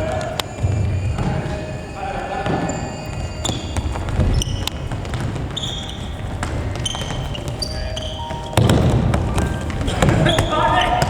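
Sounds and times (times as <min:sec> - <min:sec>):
echoing hall hum: 0:00.0 - 0:11.0
shoes squeaking on floor: 0:00.0 - 0:11.0
ball kicked and bouncing: 0:03.5 - 0:11.0.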